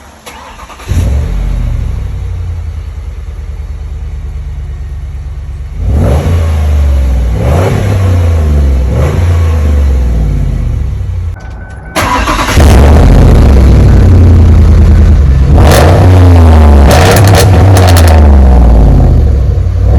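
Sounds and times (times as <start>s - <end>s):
car engine starting and idling: 0.0s - 19.9s
engine revving: 0.2s - 2.4s, 5.7s - 11.2s, 12.0s - 19.9s.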